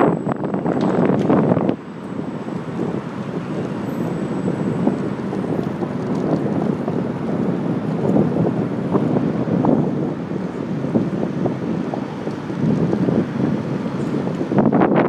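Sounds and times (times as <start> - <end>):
wind buffeting microphone: 0.0 - 15.0
bicycle knocks and rattles: 0.7 - 1.8.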